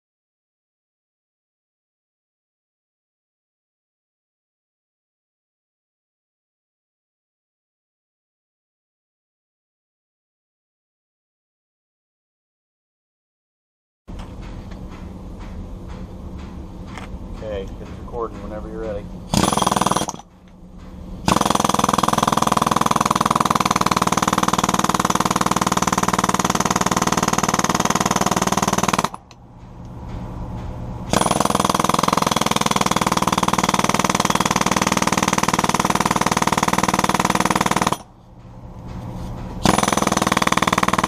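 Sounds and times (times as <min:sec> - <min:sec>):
jackhammer breaking concrete: 0:19.3 - 0:20.2, 0:21.2 - 0:29.4, 0:31.1 - 0:38.1, 0:39.6 - 0:41.0.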